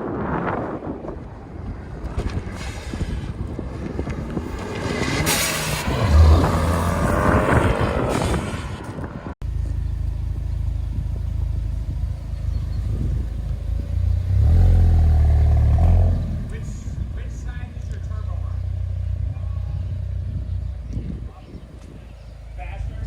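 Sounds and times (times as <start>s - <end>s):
low engine rumble: 0.0s - 23.0s
car engine revving: 2.6s - 20.6s.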